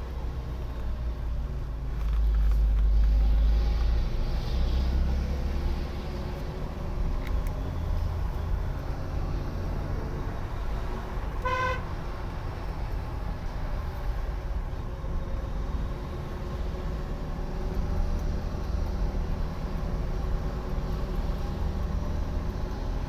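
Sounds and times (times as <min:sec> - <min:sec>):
vehicle engine and road noise: 0:00.0 - 0:23.0
car horn toot: 0:11.4 - 0:11.9.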